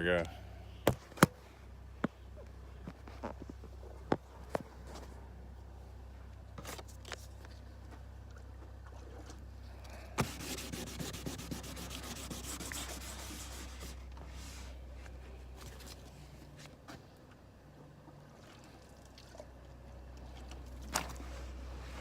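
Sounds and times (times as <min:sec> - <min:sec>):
steady low hum: 0:00.0 - 0:22.0
hand wet-sanding: 0:10.2 - 0:14.7.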